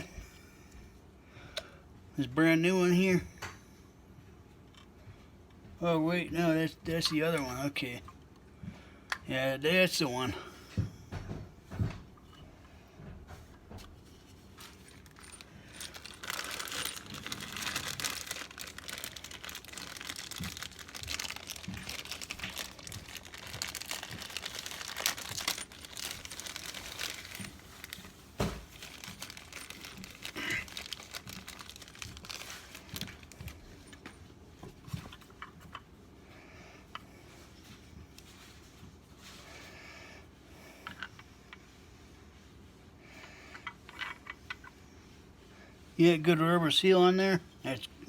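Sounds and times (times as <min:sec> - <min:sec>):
plastic packaging crinkling: 0:14.2 - 0:33.9.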